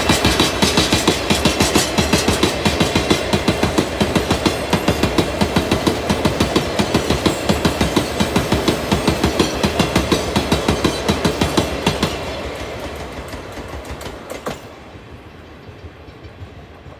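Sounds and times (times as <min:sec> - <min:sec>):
train wheels clattering over rail joints: 0:00.0 - 0:16.9.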